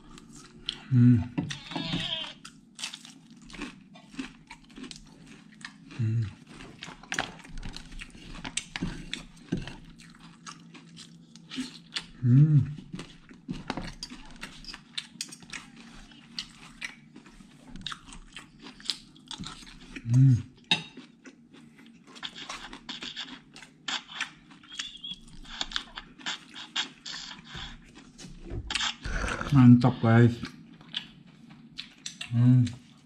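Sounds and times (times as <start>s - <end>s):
chewing and crunching food: 0.0s - 33.0s
person humming: 0.7s - 2.1s, 6.0s - 6.3s, 12.2s - 12.8s, 20.0s - 20.4s, 29.1s - 29.5s, 32.3s - 32.8s.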